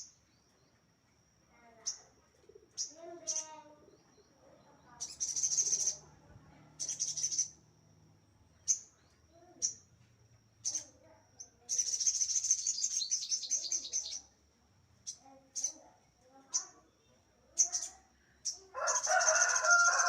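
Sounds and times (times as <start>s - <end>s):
bird chattering song: 1.7s - 7.6s, 10.6s - 14.4s, 15.0s - 20.0s
bird fast trill: 4.9s - 6.1s, 6.8s - 7.7s, 10.6s - 14.3s, 17.6s - 20.0s.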